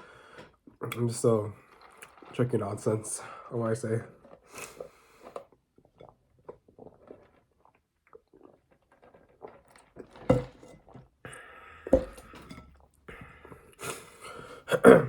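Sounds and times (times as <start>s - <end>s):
person chewing food: 1.6s - 2.3s, 4.2s - 13.8s.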